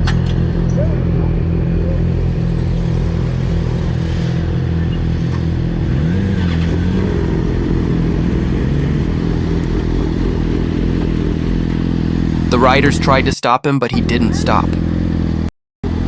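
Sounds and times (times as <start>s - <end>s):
motorcycle engine revving: 0.0s - 13.2s, 14.5s - 16.0s.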